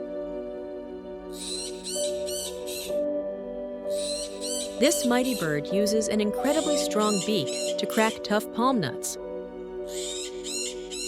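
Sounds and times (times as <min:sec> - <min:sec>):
soft background music: 0:00.0 - 0:11.0
bird high-pitched calls: 0:01.4 - 0:03.0, 0:03.9 - 0:05.7, 0:06.4 - 0:08.1, 0:09.9 - 0:11.0.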